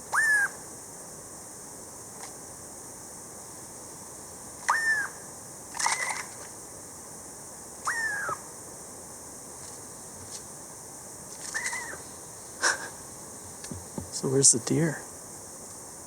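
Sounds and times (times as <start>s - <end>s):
bird whistled calls: 0.1s - 0.6s, 4.7s - 5.2s, 7.8s - 8.4s, 11.5s - 12.0s.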